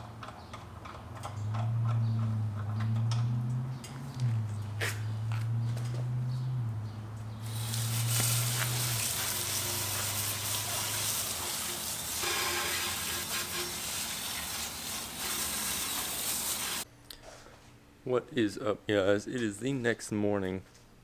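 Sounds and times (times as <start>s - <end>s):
engine hum: 0.0s - 16.8s
pressure washer spray hissing: 7.4s - 16.8s.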